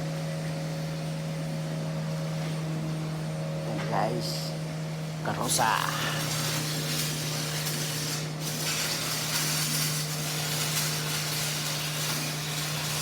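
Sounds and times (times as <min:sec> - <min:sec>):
arc welding crackling sizzle: 0:05.0 - 0:13.0.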